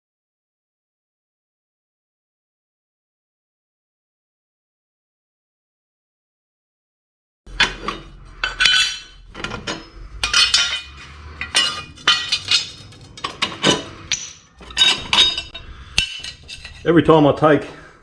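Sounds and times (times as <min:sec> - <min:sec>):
metal tools clinking: 0:07.5 - 0:17.1.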